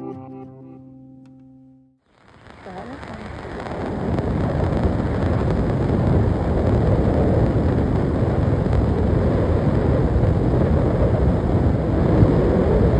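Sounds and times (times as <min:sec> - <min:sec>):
wind buffeting microphone: 0:02.4 - 0:12.9.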